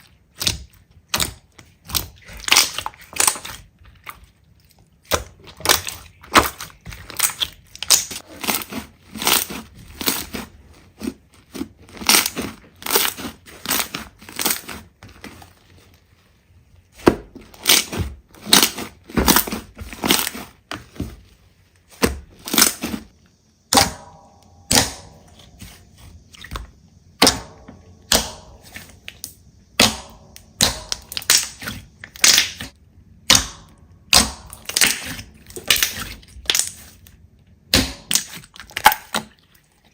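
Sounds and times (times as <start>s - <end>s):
slime squishing and crackling: 0.0s - 39.9s.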